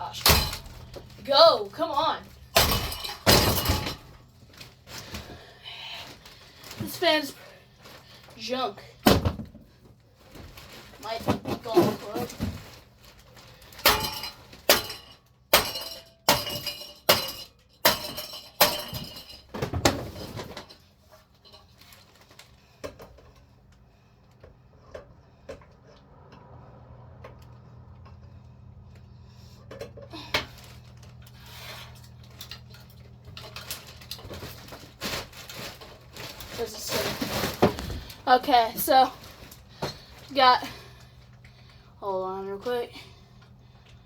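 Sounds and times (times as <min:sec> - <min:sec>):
hard blows breaking fan parts: 0:00.0 - 0:07.2, 0:13.6 - 0:20.8.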